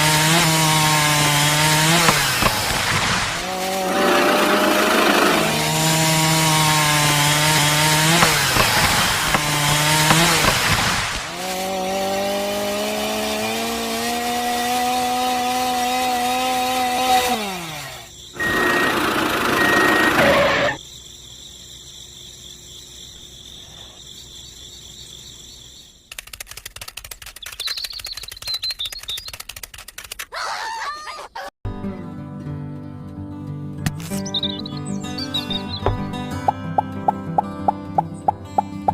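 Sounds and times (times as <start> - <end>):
harsh buzz: 0.0 - 20.8
small motor whining: 0.0 - 20.8
rapid ticking: 26.1 - 30.3, 36.1 - 38.9.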